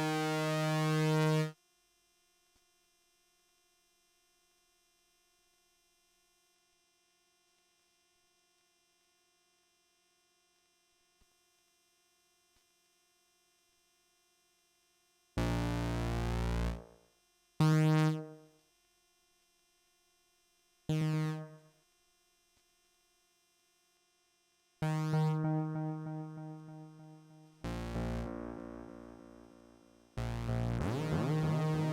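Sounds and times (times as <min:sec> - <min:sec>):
synthesizer notes: 0:25.2 - 0:31.9.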